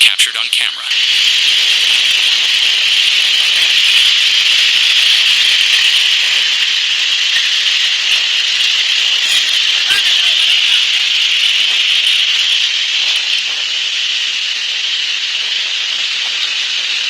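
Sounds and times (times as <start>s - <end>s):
floodwater rushing: 0.9s - 13.8s.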